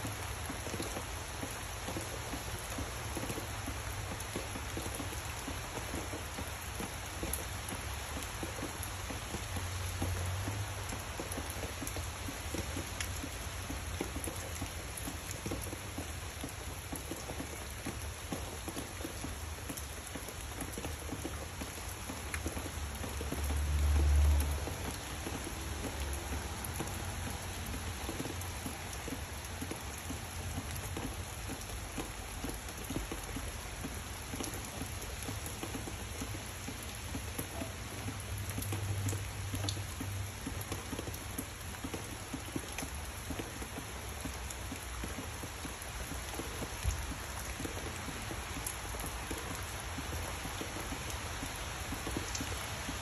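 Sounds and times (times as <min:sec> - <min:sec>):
rain on foliage: 0:00.0 - 0:53.0.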